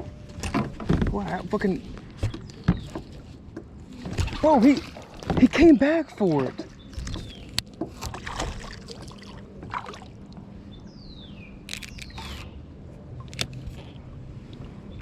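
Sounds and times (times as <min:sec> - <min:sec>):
water sloshing and trickling: 0:00.0 - 0:11.0.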